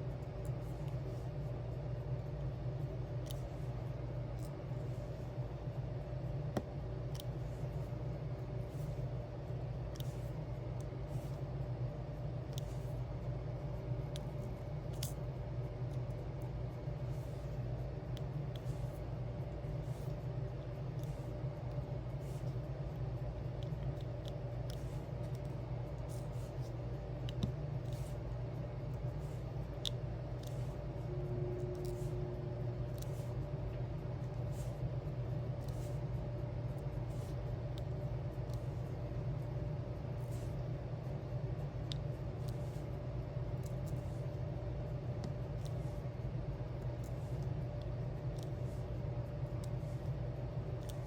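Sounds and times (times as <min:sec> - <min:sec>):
steady low hum: 0:00.0 - 0:51.0
pen clicking on small gems: 0:09.7 - 0:11.5, 0:12.4 - 0:13.0, 0:14.0 - 0:32.2, 0:32.8 - 0:33.5, 0:34.2 - 0:34.8, 0:35.5 - 0:36.0, 0:36.8 - 0:39.0, 0:41.8 - 0:42.9, 0:45.2 - 0:46.1, 0:46.8 - 0:51.0.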